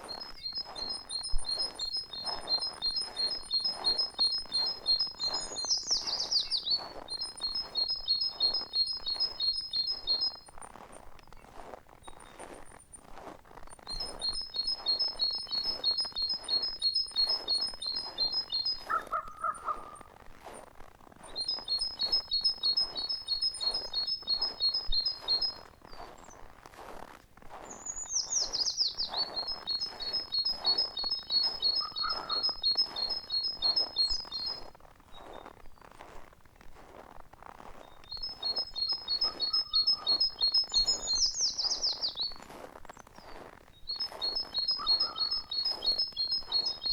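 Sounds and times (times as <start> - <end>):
songbird singing repeated high notes: 0.0 - 12.8, 13.6 - 20.6, 21.2 - 26.4, 27.6 - 36.0, 37.8 - 46.9
bird short low calls: 18.9 - 20.1, 31.8 - 32.6, 44.7 - 45.6
bird high falling call: 31.5 - 33.2, 38.9 - 42.0, 44.4 - 46.8.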